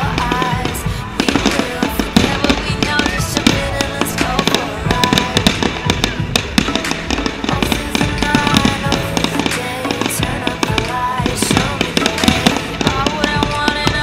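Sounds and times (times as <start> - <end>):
fireworks bangs and crackles: 0.0 - 14.0
music playing: 0.0 - 14.0.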